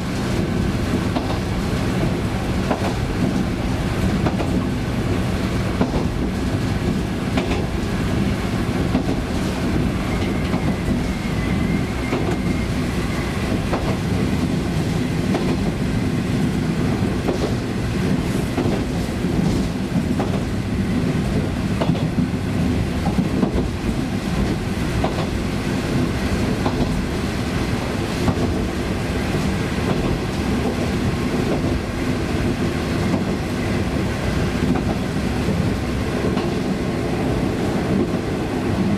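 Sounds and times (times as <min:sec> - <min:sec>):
diesel railcar engine droning: 0:00.0 - 0:38.9.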